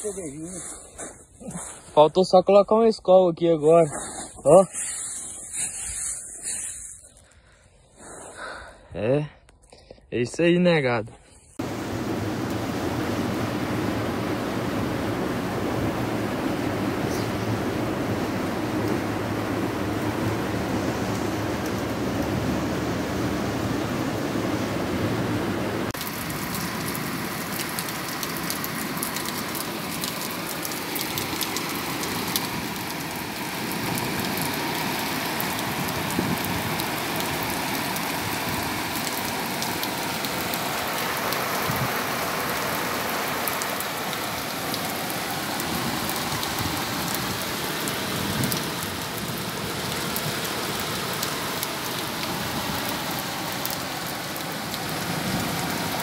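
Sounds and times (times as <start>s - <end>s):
heavy rain on flooded street: 11.6s - 56.0s.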